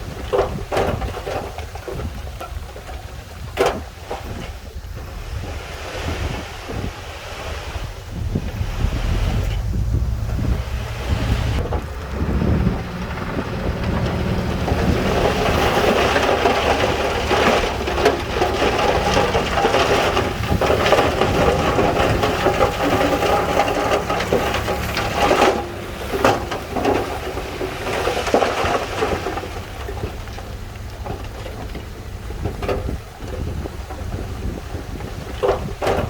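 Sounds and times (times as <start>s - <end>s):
diesel engine under load: 0.0s - 36.0s
stones crunching and clattering: 11.6s - 36.0s.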